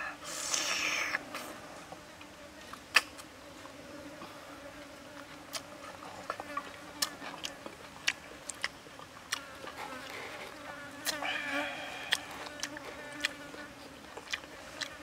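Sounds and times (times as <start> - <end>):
chewing with wet mouth clicks: 5.5 - 10.2, 11.0 - 15.0
insect buzz: 9.4 - 13.8.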